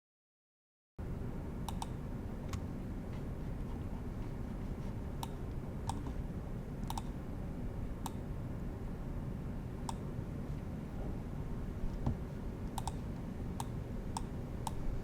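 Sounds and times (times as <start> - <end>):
steady low hum: 1.0 - 15.0
computer mouse clicking: 1.7 - 2.6, 5.2 - 6.2, 6.8 - 7.2, 8.0 - 8.2, 12.0 - 14.8.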